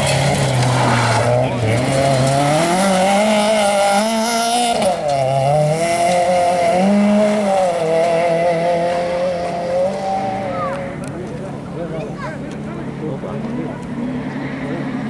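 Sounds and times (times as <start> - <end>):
rally car engine high revs: 0.0 - 11.9.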